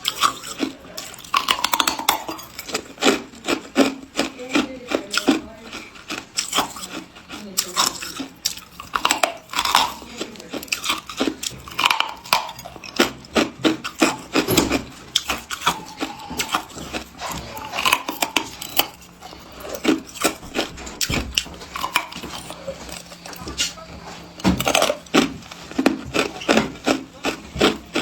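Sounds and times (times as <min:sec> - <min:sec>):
ice being chewed: 0:00.0 - 0:28.0.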